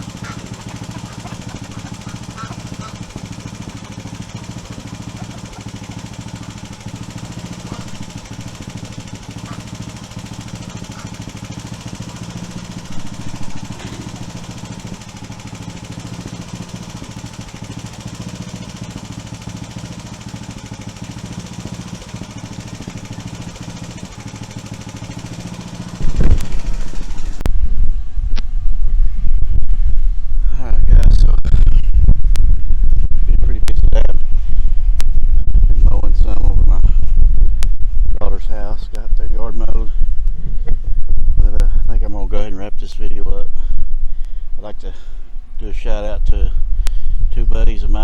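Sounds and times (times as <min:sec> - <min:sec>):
engine running steadily: 0:00.0 - 0:48.0
loud low rumble: 0:21.5 - 0:48.0.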